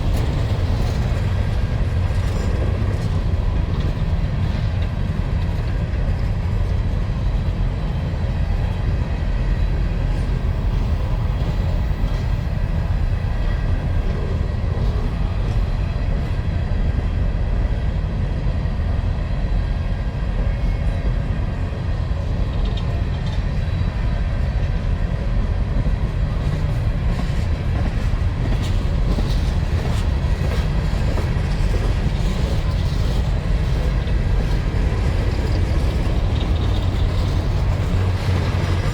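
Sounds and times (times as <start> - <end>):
mine cars rolling on rails: 26.5 - 38.9.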